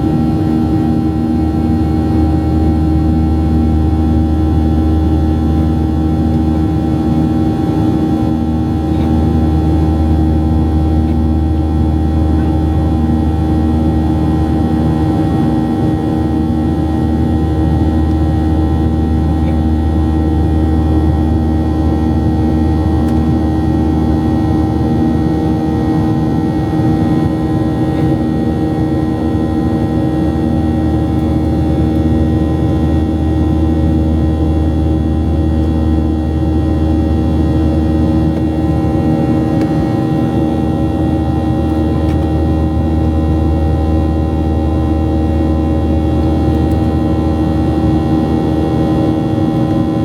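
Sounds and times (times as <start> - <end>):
airplane cabin rumble: 0.0 - 50.0
steady hum of tones: 0.0 - 50.0.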